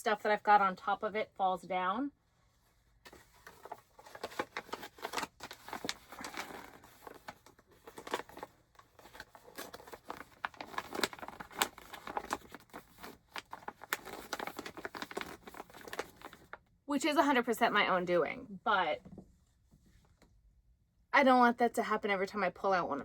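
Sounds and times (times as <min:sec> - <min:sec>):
yarn rustling and crinkling: 0:02.3 - 0:16.6.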